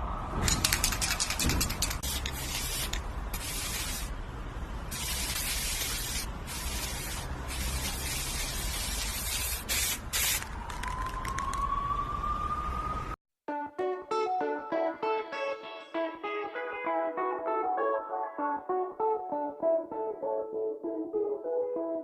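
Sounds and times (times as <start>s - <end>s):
hissing bursts: 1.2s - 4.2s, 4.9s - 10.5s.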